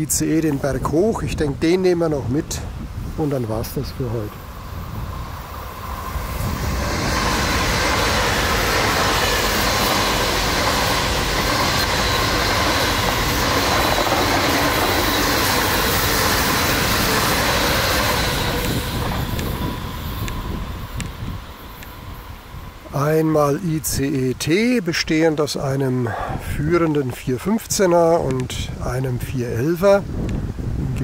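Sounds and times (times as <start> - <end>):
faint steady whine: 1.6 - 26.3
wheels rolling on rail: 2.6 - 23.3.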